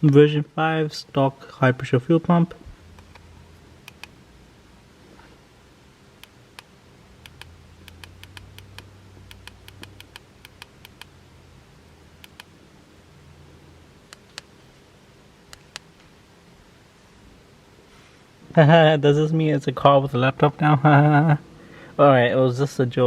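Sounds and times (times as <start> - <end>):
faint low hum: 0.0 - 23.0
laptop clicks: 6.2 - 11.1.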